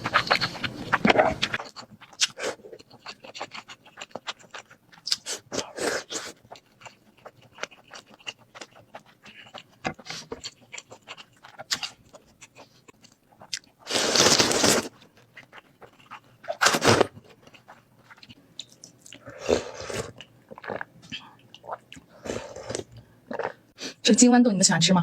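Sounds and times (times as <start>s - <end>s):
crunchy chewing: 0.0s - 23.6s
slurping noodles: 13.8s - 14.9s, 16.5s - 17.1s, 19.2s - 20.8s, 22.2s - 23.5s.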